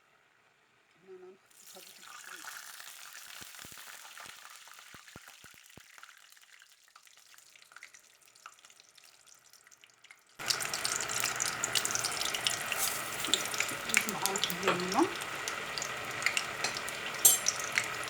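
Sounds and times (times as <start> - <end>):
sauce sizzling and crackling: 1.5 - 18.0.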